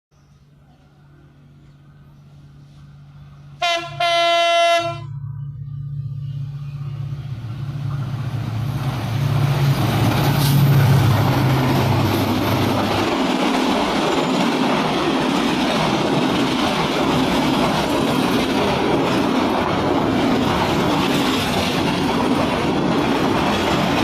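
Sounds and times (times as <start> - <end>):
diesel locomotive engine humming: 0.2 - 24.0
train rumble: 0.2 - 24.0
train horn blast: 3.6 - 5.2.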